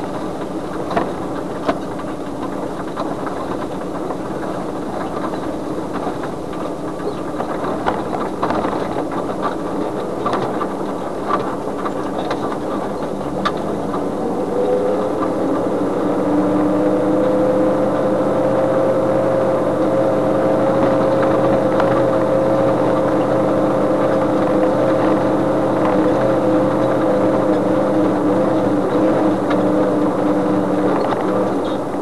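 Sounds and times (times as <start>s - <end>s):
knocks and rattles from bumpy road: 0.0s - 32.0s
vehicle engine droning: 0.0s - 32.0s.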